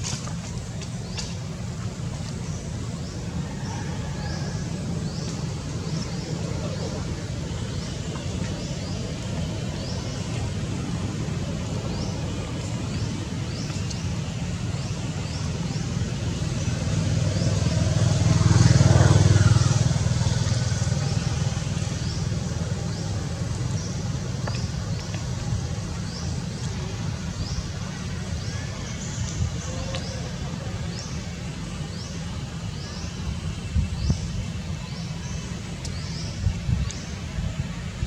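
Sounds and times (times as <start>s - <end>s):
motor vehicle passing by: 15.2s - 26.3s.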